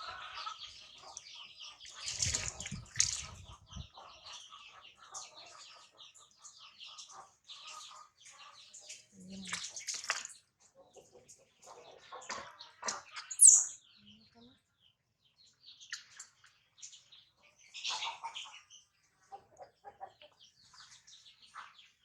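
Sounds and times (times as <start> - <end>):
water sloshing and splashing: 1.8 - 3.8, 8.8 - 10.5
high-pitched chirps and squeaks: 13.2 - 13.8.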